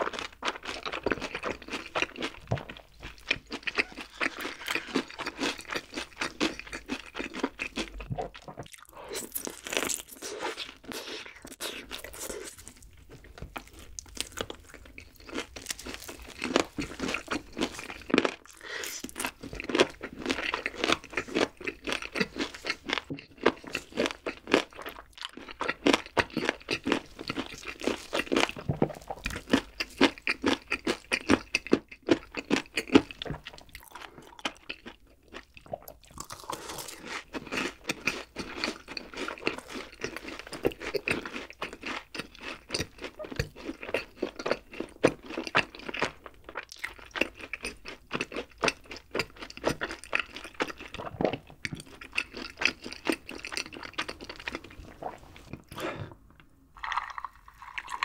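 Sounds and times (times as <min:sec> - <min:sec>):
crunchy chewing of fried food: 0:00.0 - 0:58.0
biting into fried food: 0:00.8 - 0:12.8.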